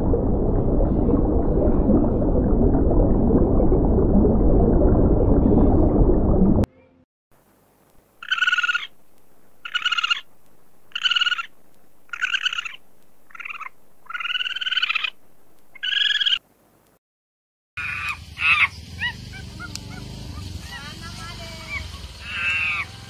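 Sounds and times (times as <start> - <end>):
lemur calling: 8.2 - 16.4, 21.6 - 23.0.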